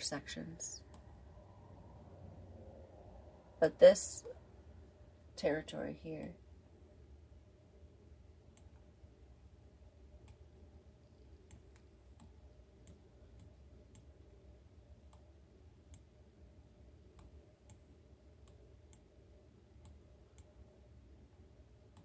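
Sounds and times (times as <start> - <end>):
low room hum: 0.0 - 22.0
computer mouse clicking: 8.5 - 8.9, 10.2 - 10.4, 11.4 - 14.1, 15.0 - 15.3, 15.9 - 16.1, 17.2 - 17.8, 18.4 - 19.1, 19.8 - 20.6.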